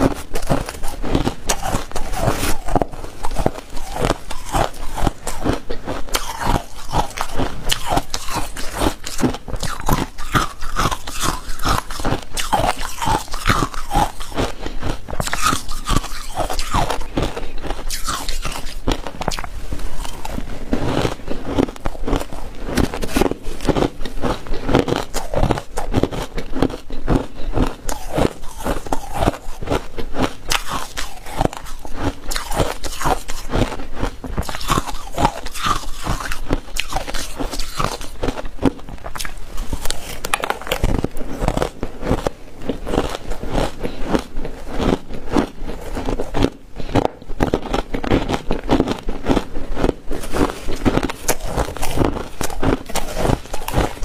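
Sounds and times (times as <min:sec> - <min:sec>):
ice crunching while chewed: 0:00.0 - 0:54.0.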